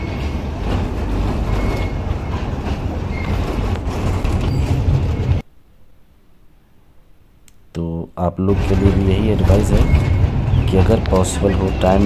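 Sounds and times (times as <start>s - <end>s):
rail joint clicks: 0.0s - 5.4s, 8.5s - 12.0s
train wheels rumbling: 0.0s - 5.4s, 8.4s - 12.0s
thin wheel squeals: 1.4s - 3.6s, 4.4s - 5.4s, 8.7s - 12.0s.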